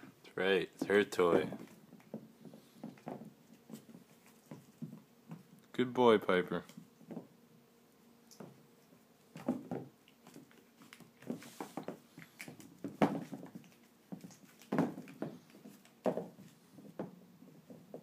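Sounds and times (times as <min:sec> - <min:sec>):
paws and toy thumping on floor: 0:00.8 - 0:05.5, 0:09.3 - 0:18.0.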